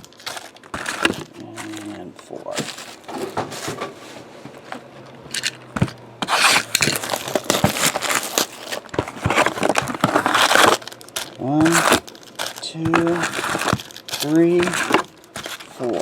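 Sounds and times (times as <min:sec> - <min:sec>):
cardboard boxes scraping: 0:00.2 - 0:16.0
small knocks of boxes: 0:05.7 - 0:10.8.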